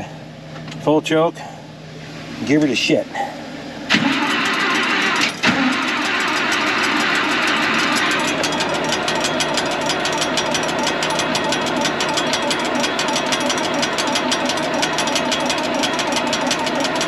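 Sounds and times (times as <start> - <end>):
engine cranking without starting: 3.9 - 17.0.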